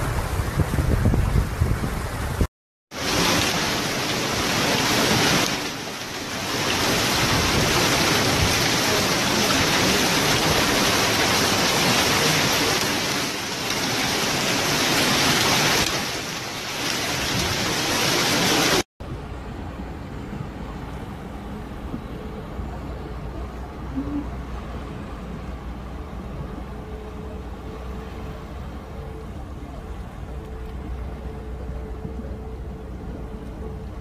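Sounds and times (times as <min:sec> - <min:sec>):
heavy rain pouring: 0:00.0 - 0:18.9.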